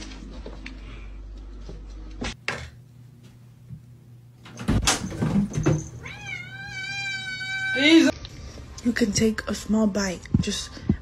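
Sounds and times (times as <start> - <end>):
cat meowing long: 6.0 - 8.1.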